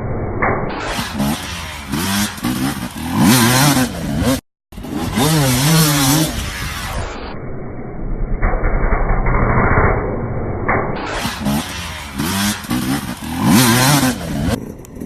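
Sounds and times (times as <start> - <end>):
another bike engine revving: 0.8 - 7.2, 11.0 - 14.7
dirt bike engine revving: 0.8 - 7.3, 11.0 - 14.6.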